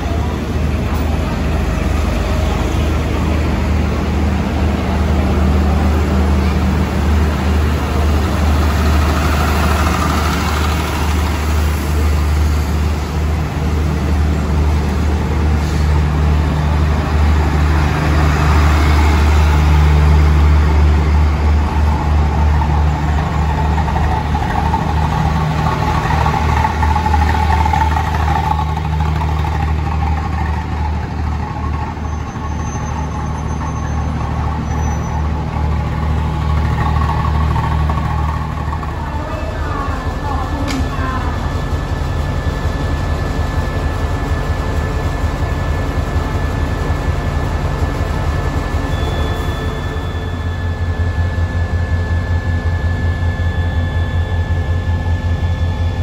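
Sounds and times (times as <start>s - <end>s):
train wheels rumbling: 0.0s - 56.0s
faint high squeal: 32.0s - 35.4s, 48.7s - 56.0s.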